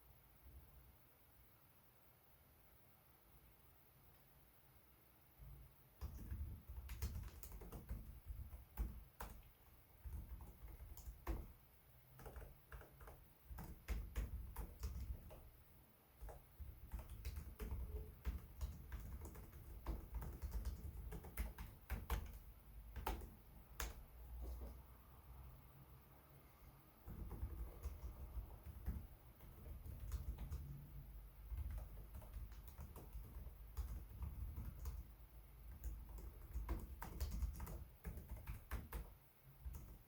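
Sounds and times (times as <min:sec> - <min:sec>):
laptop keyboard typing: 0:06.0 - 0:15.6, 0:16.2 - 0:24.8, 0:27.0 - 0:40.0.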